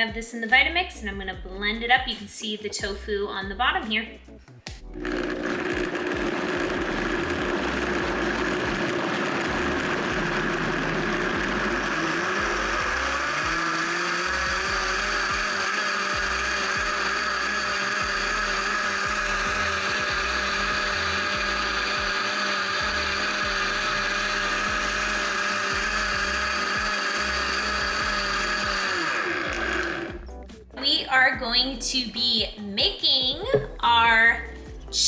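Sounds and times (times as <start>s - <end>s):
blender motor running: 4.7s - 30.5s.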